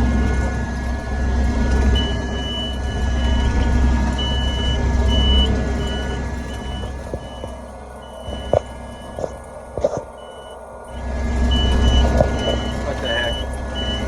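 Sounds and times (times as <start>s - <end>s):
combine harvester engine running: 0.0s - 14.0s
backup alarm beeping: 1.7s - 14.0s.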